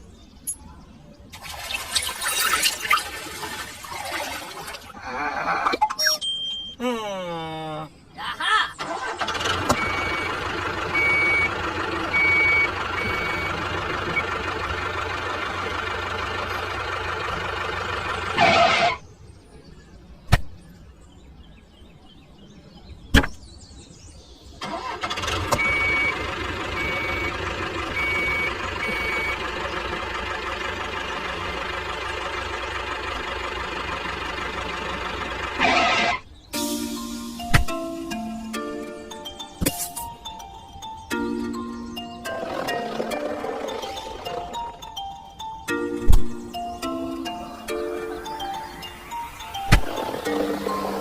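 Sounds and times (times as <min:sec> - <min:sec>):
reversing alarm beeping: 0:05.8 - 0:06.8, 0:09.6 - 0:14.4, 0:25.4 - 0:29.6
vehicle engine running: 0:08.9 - 0:19.1, 0:24.7 - 0:51.0.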